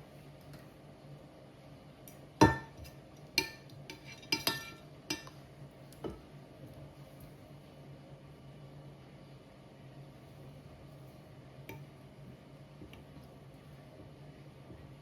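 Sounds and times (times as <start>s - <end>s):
dishes and utensils clinking: 2.4s - 5.3s.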